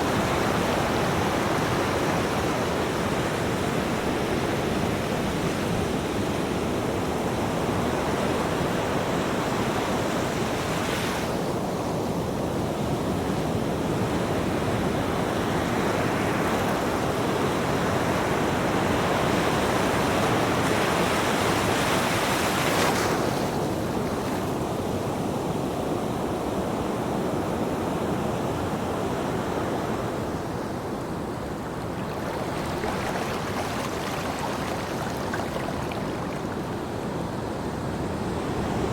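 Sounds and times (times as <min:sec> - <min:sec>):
waves breaking: 0:30.0 - 0:37.8.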